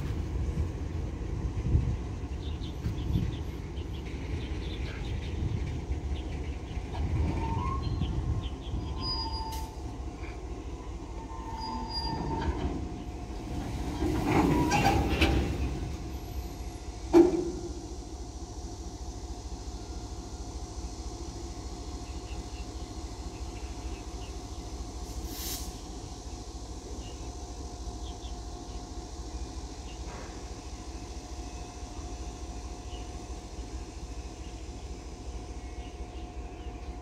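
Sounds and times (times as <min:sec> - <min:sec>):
freight train rumbling: 0:00.0 - 0:37.0
train wheels squealing: 0:06.5 - 0:16.9.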